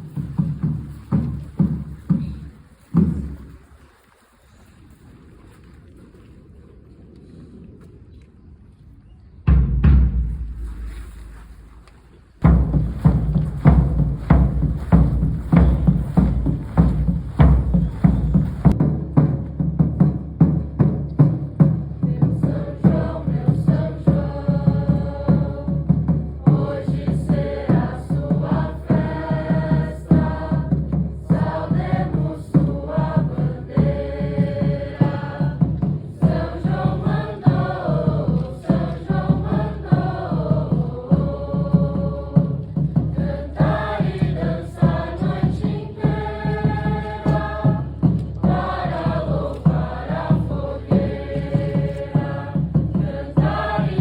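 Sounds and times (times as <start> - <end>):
voices chanting together: 12.4 - 18.8, 21.6 - 54.0
steady beat: 12.4 - 19.9, 43.1 - 54.0.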